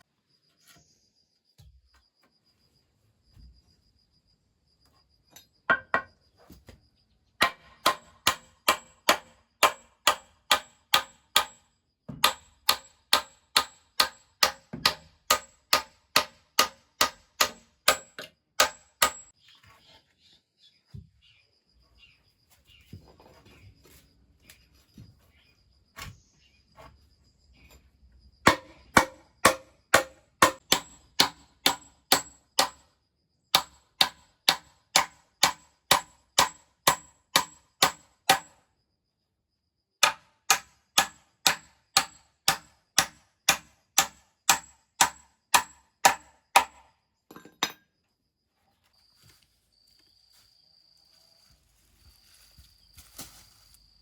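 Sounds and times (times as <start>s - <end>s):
hammer striking: 7.4s - 19.3s, 28.5s - 32.8s, 40.0s - 47.8s.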